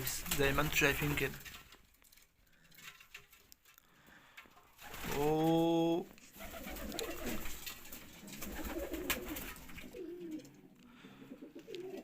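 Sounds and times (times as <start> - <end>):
pigeons cooing: 6.4 - 12.0.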